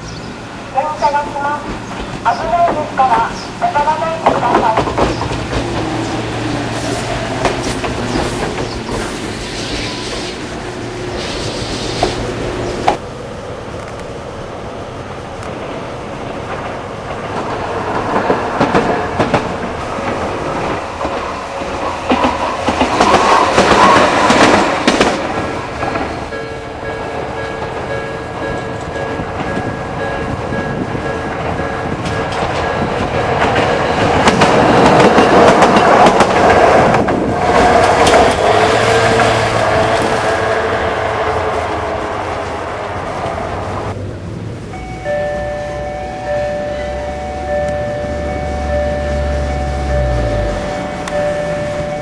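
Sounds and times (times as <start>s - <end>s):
crossing warning bells: 0.0s - 11.2s, 16.2s - 52.0s
train wheels clattering: 0.8s - 13.0s, 15.5s - 44.0s.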